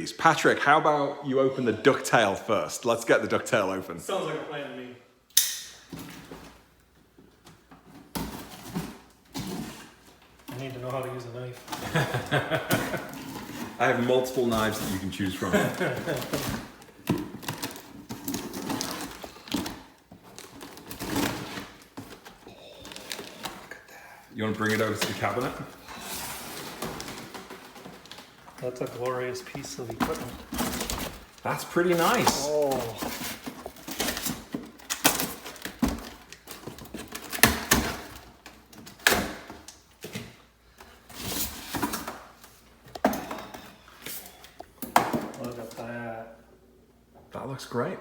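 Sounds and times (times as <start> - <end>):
packing material crinkling: 12.9 - 38.5.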